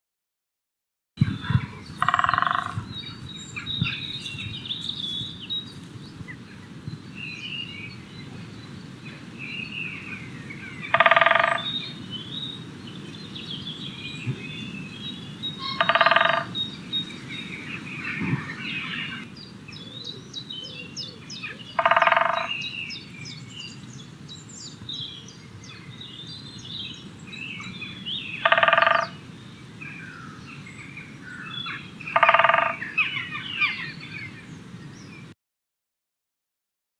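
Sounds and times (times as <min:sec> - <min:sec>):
birds chirping and singing: 0:01.2 - 0:35.3
woodpecker drumming on wood: 0:02.0 - 0:03.0, 0:10.9 - 0:11.7, 0:15.7 - 0:16.6, 0:21.8 - 0:22.5, 0:28.4 - 0:29.2, 0:32.1 - 0:32.8.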